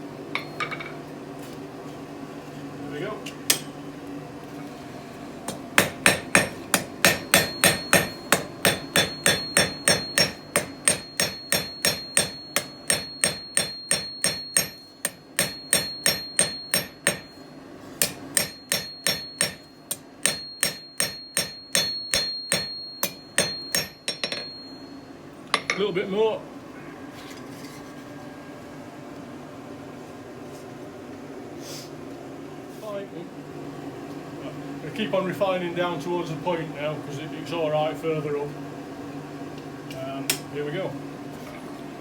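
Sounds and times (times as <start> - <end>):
hammer striking steel on anvil: 5.5 - 17.4, 18.0 - 24.8.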